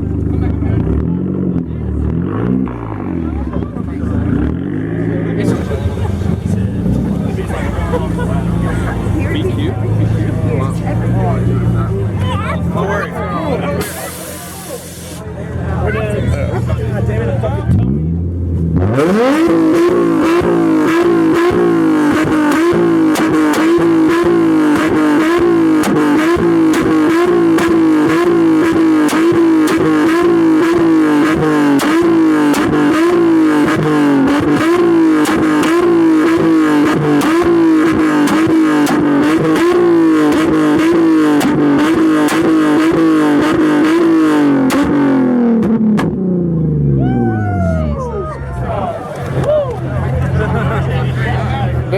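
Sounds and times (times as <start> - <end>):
car engine revving: 0.0 - 51.9
rapid engine crackle: 5.4 - 10.2.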